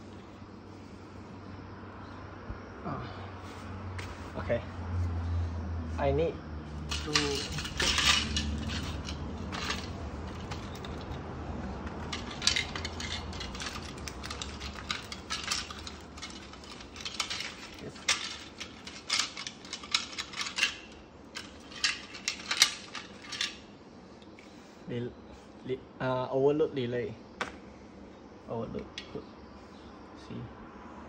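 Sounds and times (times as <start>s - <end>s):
small metallic clicks and clinks: 6.8s - 23.6s.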